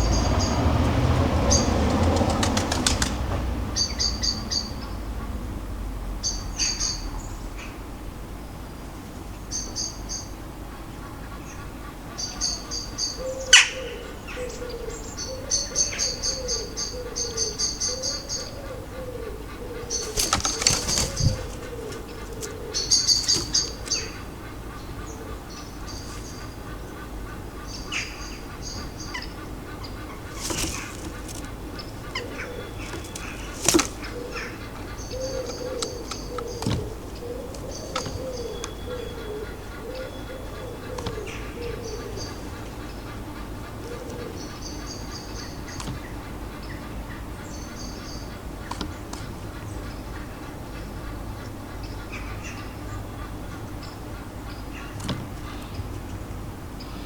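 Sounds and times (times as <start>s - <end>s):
small birds chirping: 0.0s - 5.4s, 6.2s - 57.0s
wingbeats fluttering: 1.8s - 3.3s, 19.6s - 24.6s, 30.0s - 39.0s.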